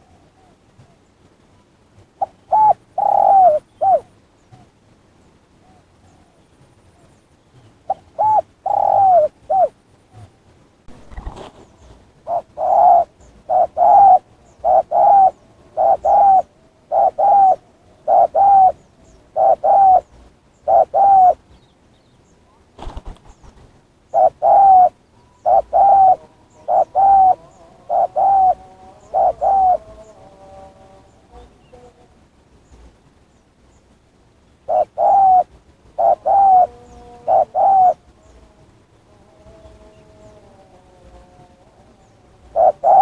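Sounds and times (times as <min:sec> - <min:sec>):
doves cooing: 0:02.2 - 0:04.1, 0:07.9 - 0:10.4, 0:11.0 - 0:21.4, 0:24.1 - 0:32.2, 0:34.6 - 0:43.0.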